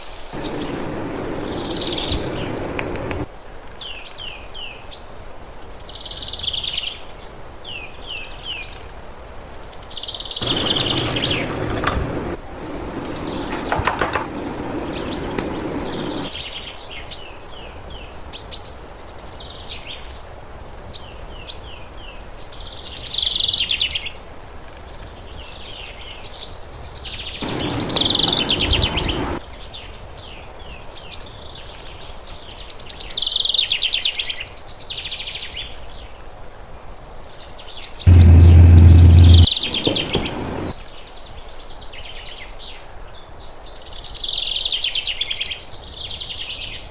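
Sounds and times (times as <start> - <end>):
small birds chirping: 0.0 - 8.8, 9.6 - 20.2, 25.0 - 30.4, 38.0 - 40.8
rushing noise: 0.3 - 3.3, 10.4 - 16.3, 27.4 - 29.4, 38.1 - 40.8
loud low hum: 10.4 - 13.4, 27.4 - 29.4, 38.1 - 40.7.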